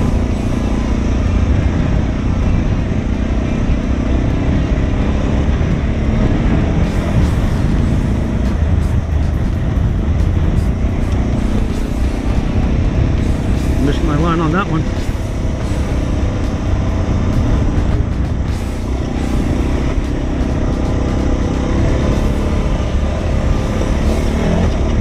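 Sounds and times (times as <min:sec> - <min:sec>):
motorcycle engine running: 0:00.0 - 0:25.0
wind rumble on microphone: 0:00.0 - 0:25.0.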